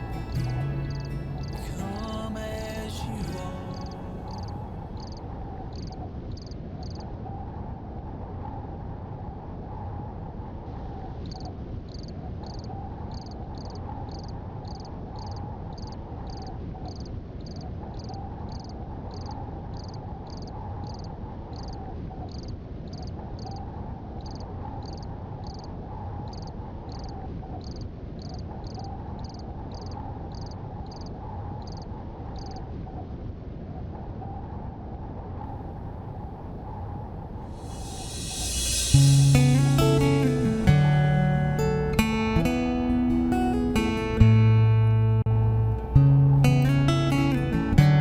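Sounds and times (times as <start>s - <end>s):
high repeating chirp: 0.0s - 5.2s
low continuous trill: 35.5s - 44.4s.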